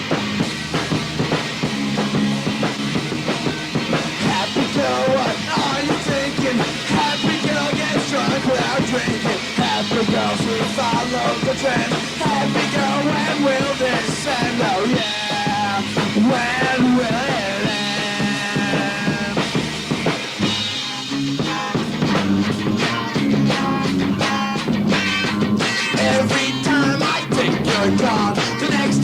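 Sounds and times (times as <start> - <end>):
punk rock band with drums: 0.0 - 29.0.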